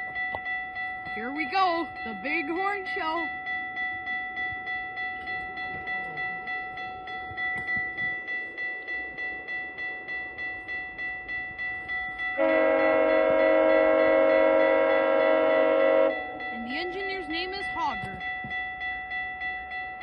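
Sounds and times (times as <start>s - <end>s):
crossing bell dinging: 0.0s - 20.0s
train horn: 12.4s - 16.3s.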